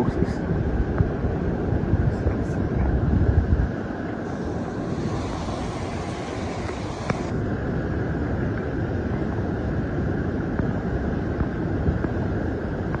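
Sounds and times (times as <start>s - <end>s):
waterfall rushing: 4.2s - 7.4s.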